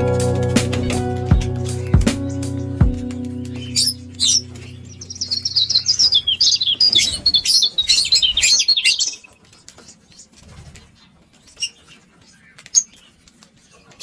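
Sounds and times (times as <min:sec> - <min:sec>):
lovebirds chirping: 0:00.2 - 0:10.0.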